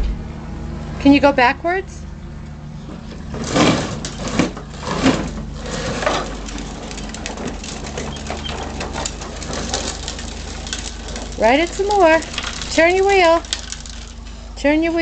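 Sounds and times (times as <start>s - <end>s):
toy tractor rattling and scraping: 2.8s - 15.0s.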